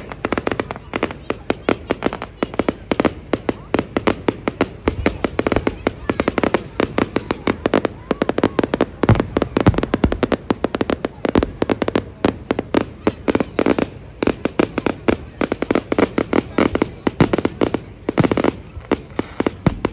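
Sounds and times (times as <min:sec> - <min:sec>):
fireworks bangs and crackles: 0:00.0 - 0:19.9
deep firework booms: 0:07.0 - 0:13.6.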